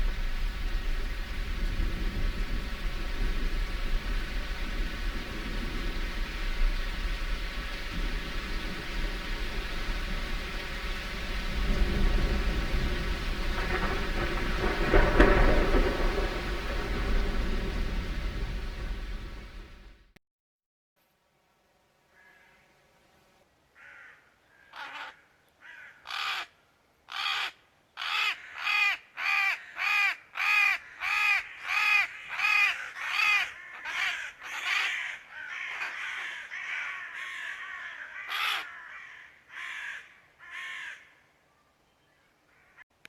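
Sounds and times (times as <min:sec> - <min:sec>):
crow cawing: 0:22.1 - 0:22.6, 0:23.8 - 0:41.3, 0:42.5 - 0:42.8.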